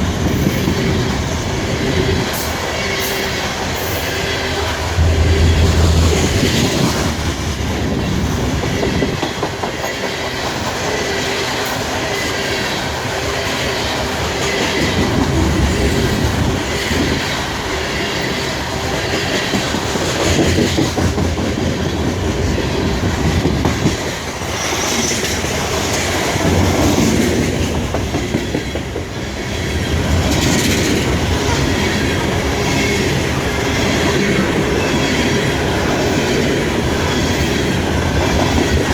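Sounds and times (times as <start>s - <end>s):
train cars rumbling: 0.0s - 10.5s.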